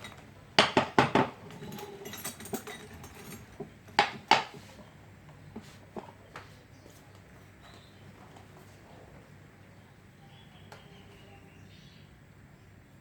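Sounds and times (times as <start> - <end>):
metal tools clinking: 1.2 - 4.3.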